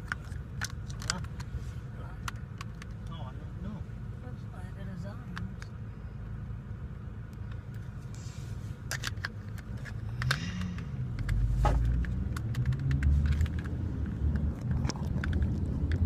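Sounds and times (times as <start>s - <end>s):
plastic cube clicks and taps: 8.9s - 16.0s.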